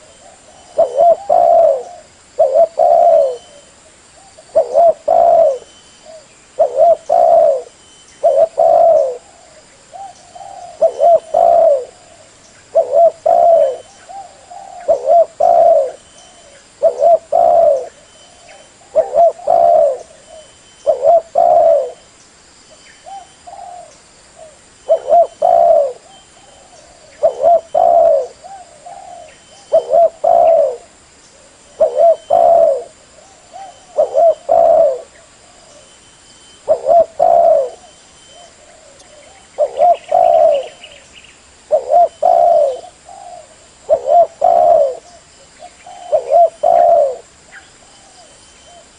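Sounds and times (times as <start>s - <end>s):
dove cooing: 0.0s - 22.0s, 23.0s - 48.9s.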